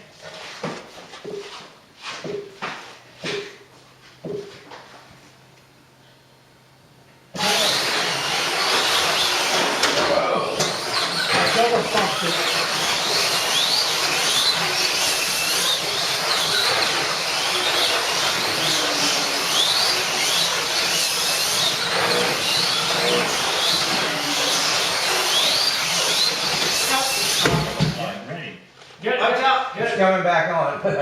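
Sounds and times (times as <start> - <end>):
slot car motors whirring: 7.3 - 28.2.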